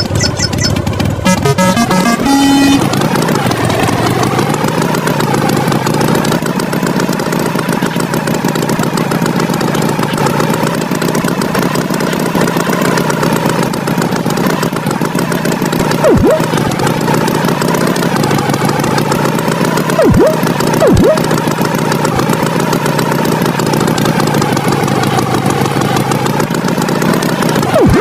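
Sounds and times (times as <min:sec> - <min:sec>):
falling run of tones: 0:00.0 - 0:05.9, 0:15.8 - 0:17.4, 0:19.9 - 0:22.2, 0:27.4 - 0:28.0
vehicle engine droning: 0:00.0 - 0:28.0.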